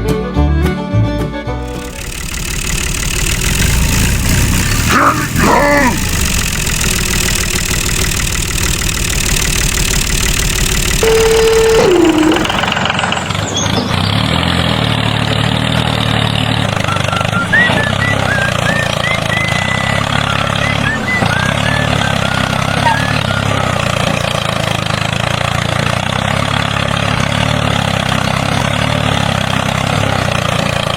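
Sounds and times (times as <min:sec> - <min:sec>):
engine running: 0:01.6 - 0:30.9
tone sliding down in pitch: 0:11.0 - 0:13.3
high chirps: 0:11.0 - 0:13.8.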